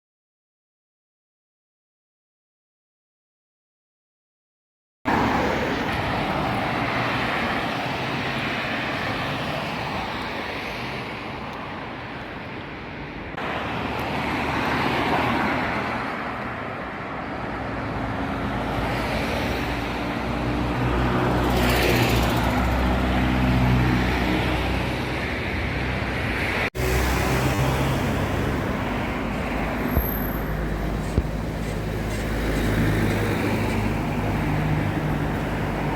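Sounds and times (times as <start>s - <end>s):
passing street traffic: 5.1s - 35.9s
vehicle engine running nearby: 26.8s - 35.9s.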